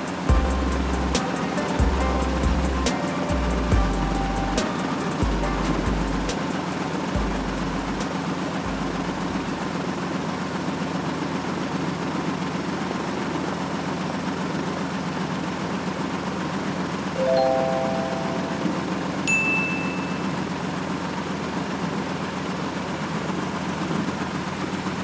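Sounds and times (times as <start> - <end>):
noisy hiss: 0.0 - 9.7
engine-like hum: 0.3 - 4.6, 5.2 - 10.4.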